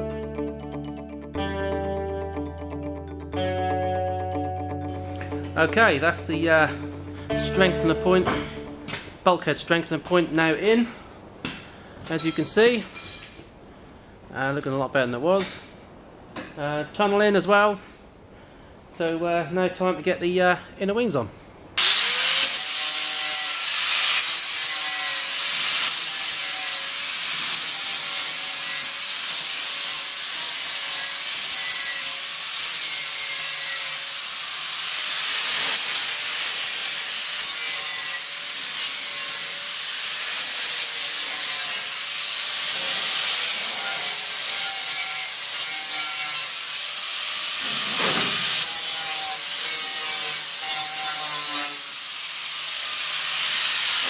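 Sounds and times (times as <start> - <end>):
grinder sanding steel: 21.8 - 54.0.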